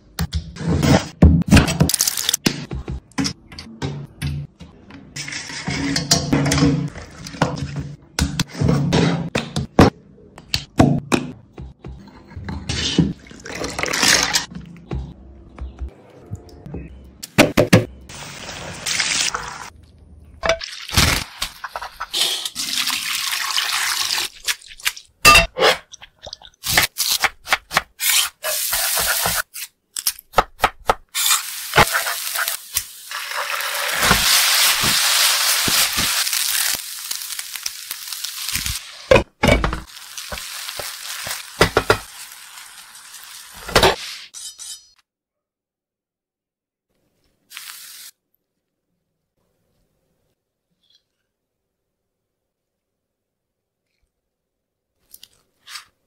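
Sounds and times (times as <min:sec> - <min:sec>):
chicken sizzling in hot oil: 0:31.2 - 0:39.1, 0:39.9 - 0:43.7.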